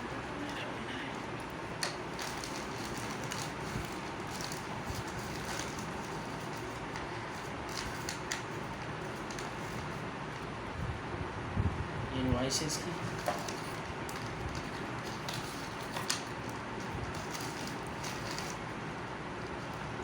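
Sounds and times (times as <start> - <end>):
packaging crinkling: 1.5 - 10.4, 13.0 - 20.0.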